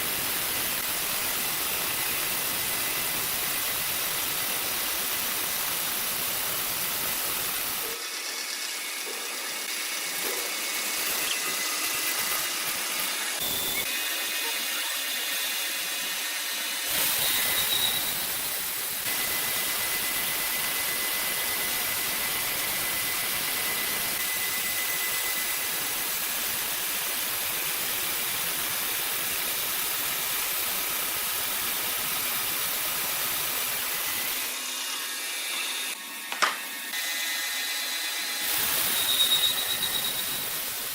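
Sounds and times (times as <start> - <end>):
machinery hissing: 16.8 - 26.6
faint high whine: 38.6 - 40.8.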